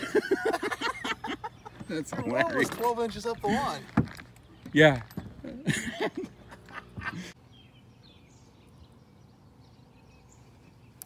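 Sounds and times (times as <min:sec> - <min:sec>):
distant birds chirping: 0:00.0 - 0:11.0
voice: 0:01.9 - 0:03.9.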